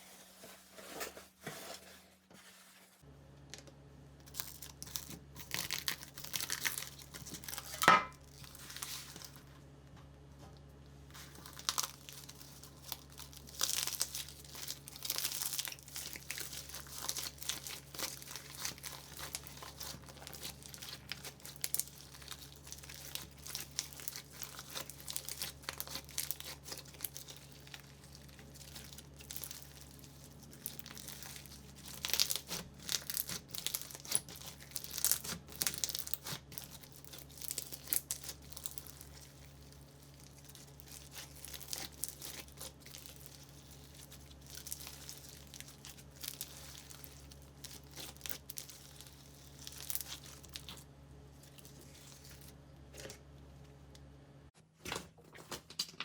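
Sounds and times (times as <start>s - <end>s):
faint steady hum: 0.0s - 54.5s
slime crackling and popping: 4.2s - 9.4s, 11.1s - 52.5s.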